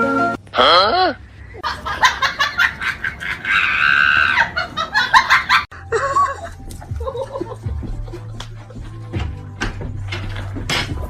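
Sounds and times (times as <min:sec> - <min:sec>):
person laughing: 0:00.6 - 0:08.7.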